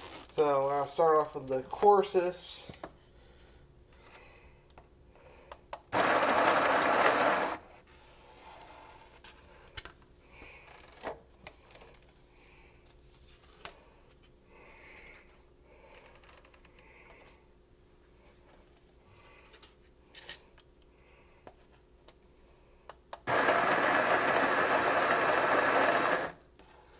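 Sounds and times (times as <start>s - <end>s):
coffee grinder grinding beans: 6.0s - 7.7s, 23.3s - 26.5s.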